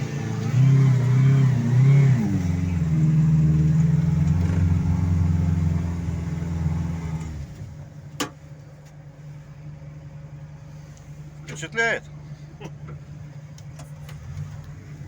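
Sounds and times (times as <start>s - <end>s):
engine revving under load: 0.0s - 7.8s.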